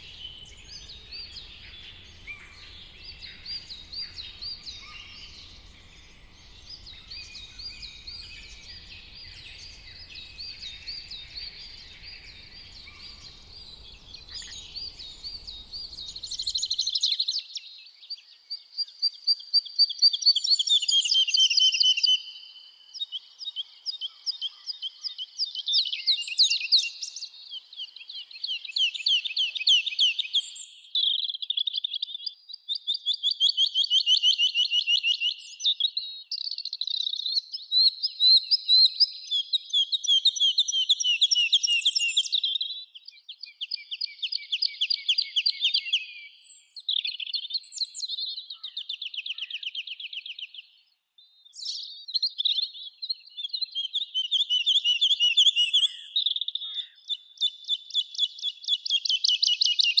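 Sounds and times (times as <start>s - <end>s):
songbirds singing trills: 0.0s - 17.1s.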